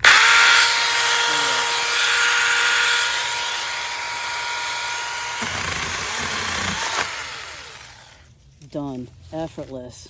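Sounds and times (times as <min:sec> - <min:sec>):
electric chainsaw whining: 0:00.0 - 0:08.2.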